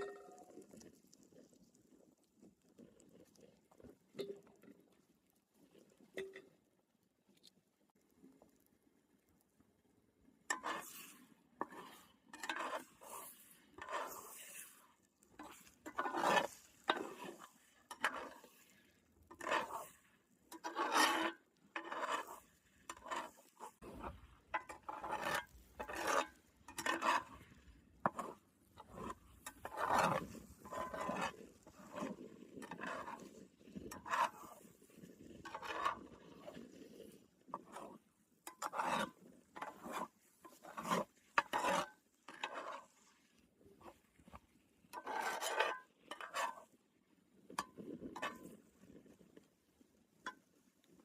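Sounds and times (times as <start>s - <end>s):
spatula scraping frying pan: 10.5s - 43.0s, 44.9s - 46.7s, 47.6s - 48.6s.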